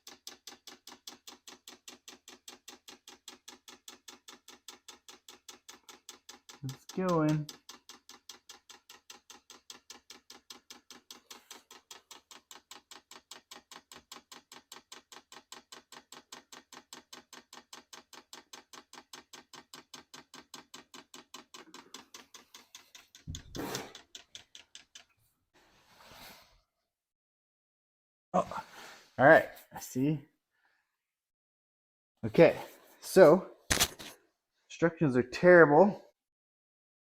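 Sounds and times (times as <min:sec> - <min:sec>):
fuel pump ticking rapidly: 0:00.0 - 0:25.2.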